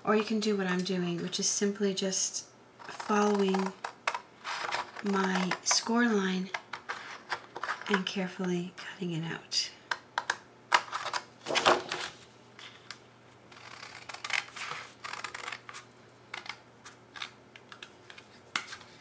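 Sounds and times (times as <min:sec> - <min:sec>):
paper sheet rustling: 0:04.4 - 0:05.6.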